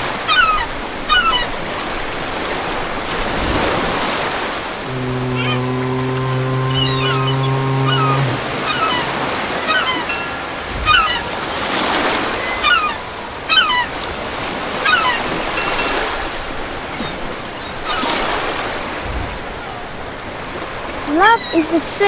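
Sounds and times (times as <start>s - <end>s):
waves washing: 1.7s - 16.7s
birds chirping: 4.8s - 11.5s.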